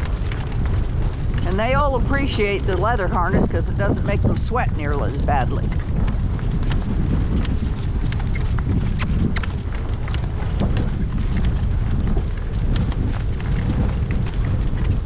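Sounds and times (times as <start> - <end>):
horse hooves clip-clopping: 0.0 - 15.0
wind buffeting microphone: 0.0 - 15.0.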